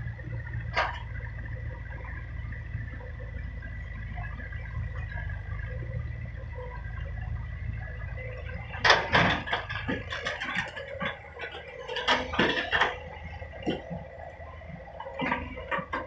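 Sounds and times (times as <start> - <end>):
excavator diesel engine running: 0.0 - 16.0
clanking and scraping: 8.8 - 14.0.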